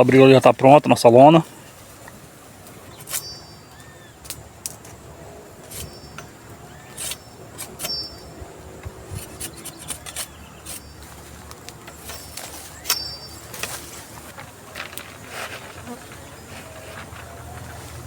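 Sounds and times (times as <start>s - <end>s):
rubbing noises: 8.8s - 18.0s.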